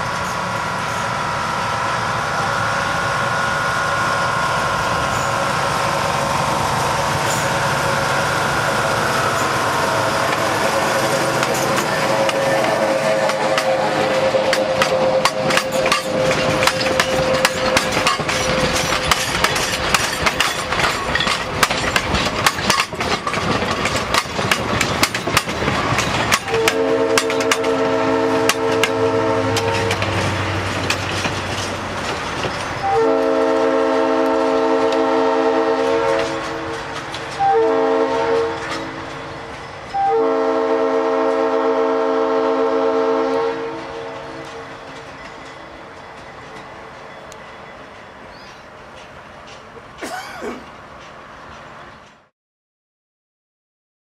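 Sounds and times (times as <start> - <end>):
train wheels clicking and rattling: 0.0 - 40.1, 43.7 - 52.3
locomotive horn blasts: 9.7 - 19.2, 26.3 - 30.2, 32.8 - 39.0, 39.9 - 44.6.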